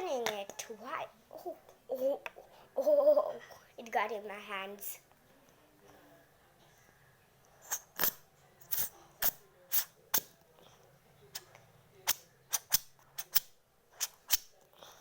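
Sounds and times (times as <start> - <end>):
plastic bottle cap clicks and snaps: 7.7 - 9.4.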